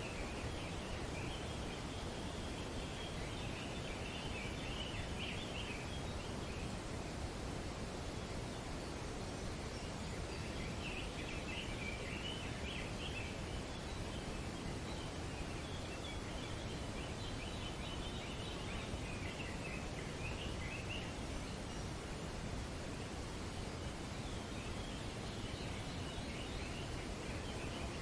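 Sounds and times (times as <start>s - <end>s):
wind in trees: 0.0s - 28.0s
birds chattering: 24.4s - 28.0s.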